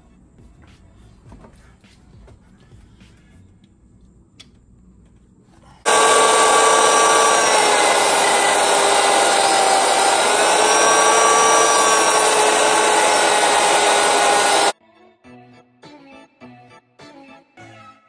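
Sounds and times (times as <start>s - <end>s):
rotary tool cutting metal: 5.9s - 14.8s.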